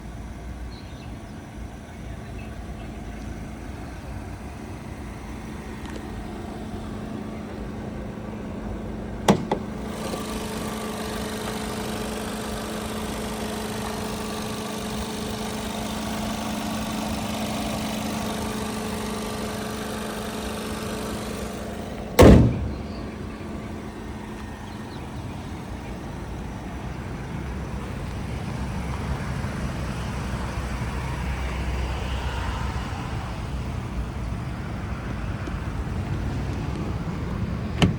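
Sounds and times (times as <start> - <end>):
constant background noise: 0.0 - 17.0
car door shutting: 9.2 - 10.3, 22.2 - 23.3, 37.4 - 37.9
steady low hum: 20.8 - 27.9.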